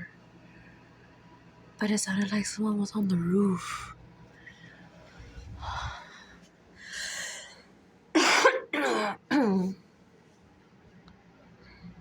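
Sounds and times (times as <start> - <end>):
soft breaths: 3.8 - 7.8
person coughing: 8.2 - 9.7.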